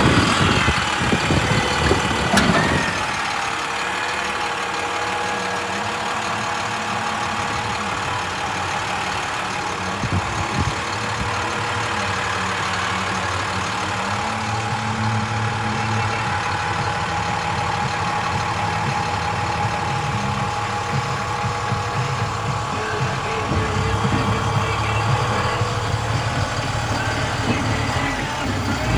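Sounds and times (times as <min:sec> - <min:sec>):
diesel engine running: 0:00.0 - 0:28.9
high whine: 0:06.8 - 0:28.9.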